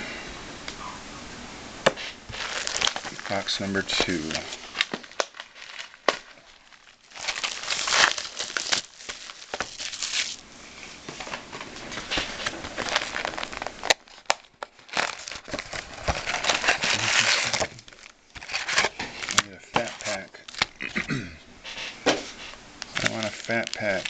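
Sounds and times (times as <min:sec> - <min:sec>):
plastic wrapping crinkling: 0:01.8 - 0:24.0.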